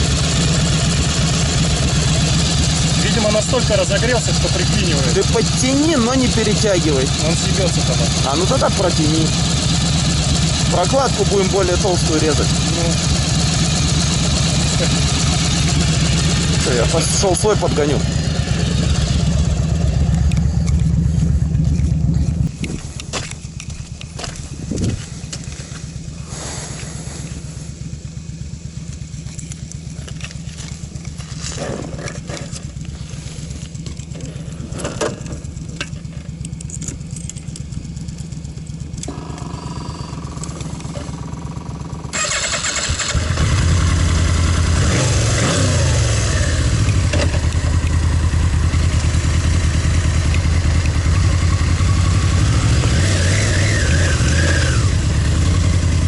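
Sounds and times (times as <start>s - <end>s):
loud motorcycle engine starting: 0.0s - 56.0s
motorcycle engine idling: 0.0s - 56.0s
engine knocks: 28.8s - 43.7s, 46.6s - 52.6s.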